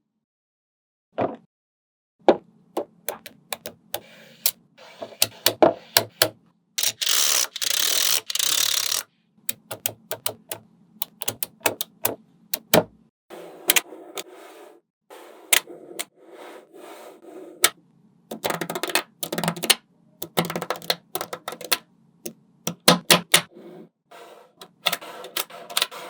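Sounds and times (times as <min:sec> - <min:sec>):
magnetic balls clicking: 0:03.1 - 0:04.6, 0:05.2 - 0:12.9, 0:17.6 - 0:21.8, 0:22.7 - 0:23.5.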